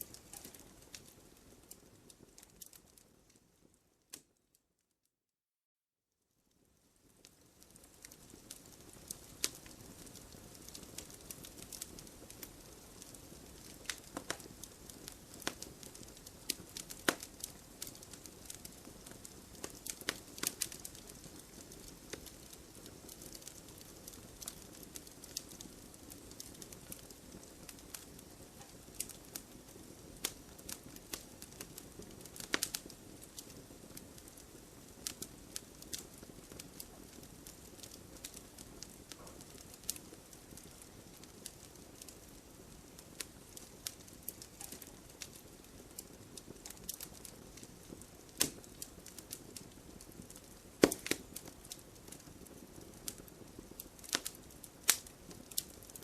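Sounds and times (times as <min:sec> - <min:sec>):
burning wood popping and crackling: 0:00.0 - 0:03.5, 0:07.0 - 0:56.0
fire hiss: 0:42.7 - 0:55.9.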